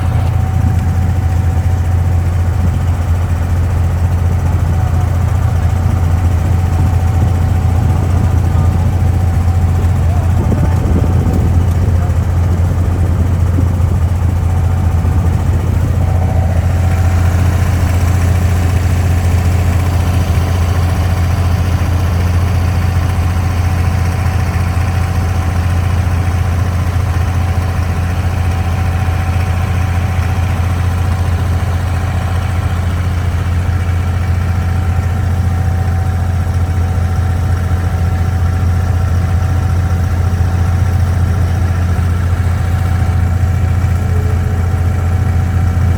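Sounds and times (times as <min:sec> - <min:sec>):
boat diesel engine humming: 0:00.0 - 0:45.9.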